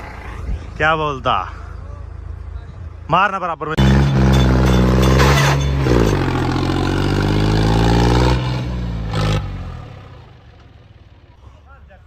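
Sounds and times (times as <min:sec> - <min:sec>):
tractor diesel engine revving: 0:03.8 - 0:11.0.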